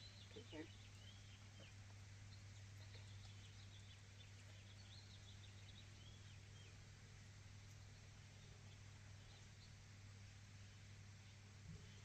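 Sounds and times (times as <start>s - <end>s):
faint bird chirps: 0.0s - 6.8s
steady low hum: 0.0s - 12.0s.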